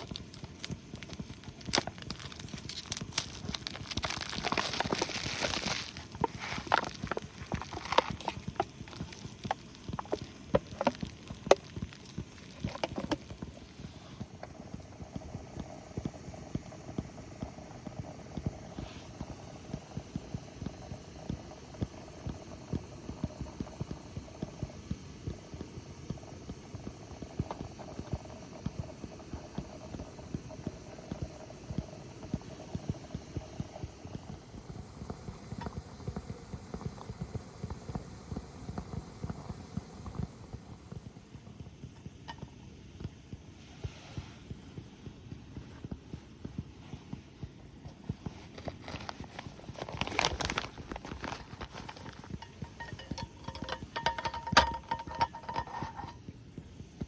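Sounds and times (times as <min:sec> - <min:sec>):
sharp clicks and knocks: 0:49.7 - 0:56.2.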